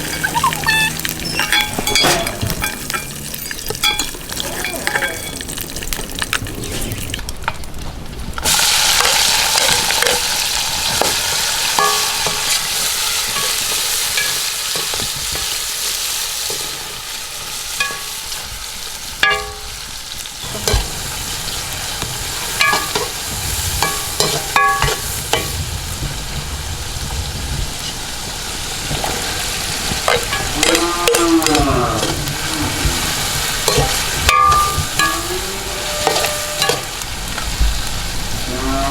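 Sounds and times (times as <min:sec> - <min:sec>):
food sizzling in hot oil: 0:00.0 - 0:07.7, 0:08.3 - 0:38.9
metal ladle clinking against pot: 0:01.3 - 0:03.2, 0:19.2 - 0:19.7, 0:22.6 - 0:23.1, 0:23.8 - 0:25.5, 0:33.7 - 0:37.0.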